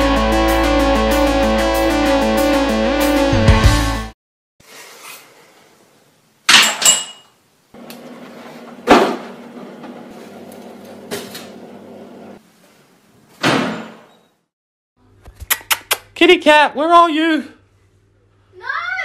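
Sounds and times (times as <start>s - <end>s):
low appliance hum: 7.5s - 13.3s
doors slamming: 13.4s - 14.1s.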